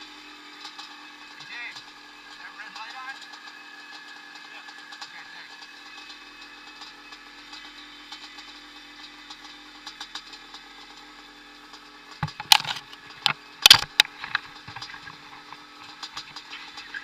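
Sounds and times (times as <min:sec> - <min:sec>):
motorcycle engines running: 0:00.0 - 0:17.0
sharp knocks and rattles: 0:12.1 - 0:17.0.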